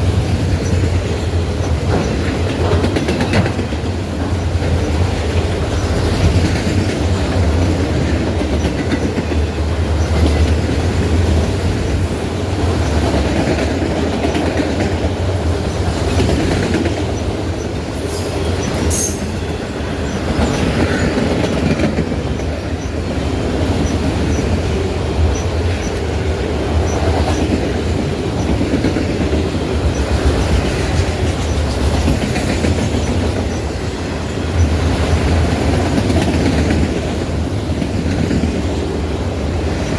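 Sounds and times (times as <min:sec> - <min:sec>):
train cars rumbling past: 0:00.0 - 0:39.9
wheels clickety-clack on rail joints: 0:00.0 - 0:39.9.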